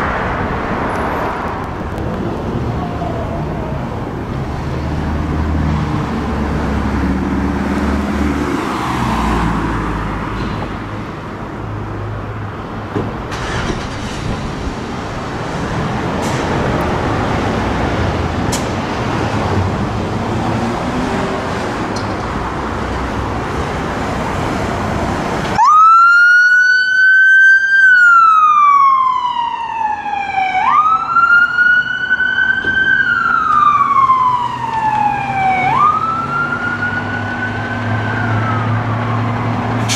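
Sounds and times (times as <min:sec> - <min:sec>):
traffic engine noise: 0:00.0 - 0:39.9
emergency siren wailing: 0:01.9 - 0:04.5, 0:25.5 - 0:39.9.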